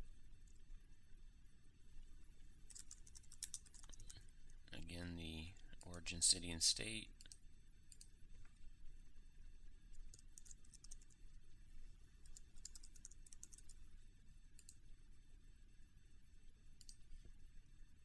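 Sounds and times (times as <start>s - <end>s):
faint typing on computer keyboard: 0.4s - 0.7s, 2.6s - 8.6s, 9.9s - 11.4s, 12.2s - 13.8s, 14.5s - 14.9s, 16.8s - 17.3s.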